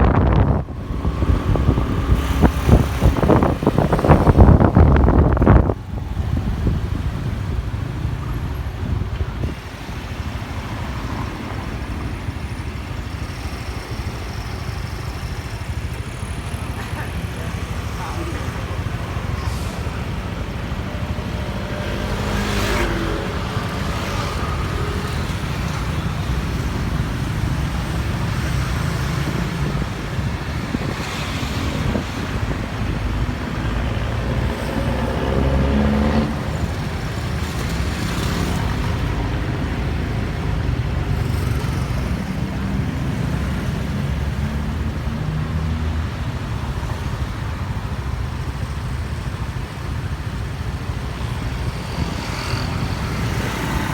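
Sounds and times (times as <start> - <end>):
engines revving up and down: 0.0 - 5.8, 16.3 - 46.1, 51.2 - 53.9
traffic rumble: 0.0 - 53.9.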